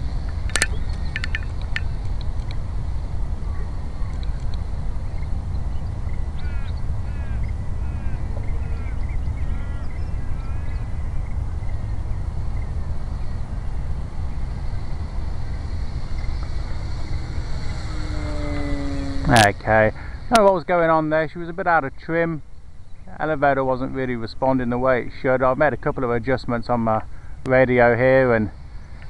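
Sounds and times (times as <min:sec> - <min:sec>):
wind buffeting microphone: 0:00.0 - 0:21.8
bird chirping: 0:00.3 - 0:02.0, 0:03.4 - 0:20.6
electric motor whine: 0:14.4 - 0:20.3.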